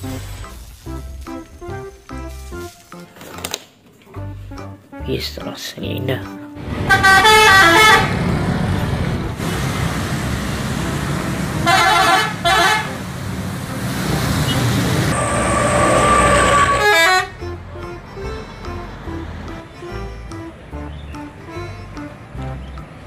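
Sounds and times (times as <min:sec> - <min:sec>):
road traffic noise: 0:00.0 - 0:04.9, 0:06.5 - 0:23.0
vehicle horn toots: 0:06.8 - 0:08.2, 0:11.6 - 0:13.0, 0:14.4 - 0:17.4.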